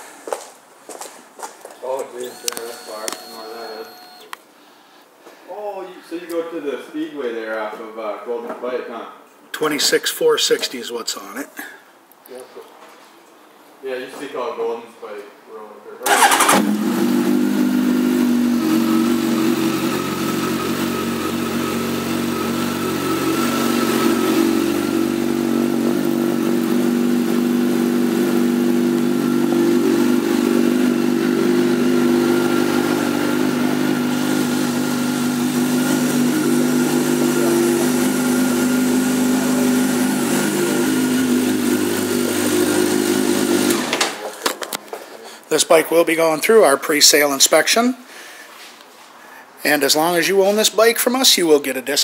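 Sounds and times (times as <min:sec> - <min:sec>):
motorcycle engine idling: 0:16.1 - 0:43.5.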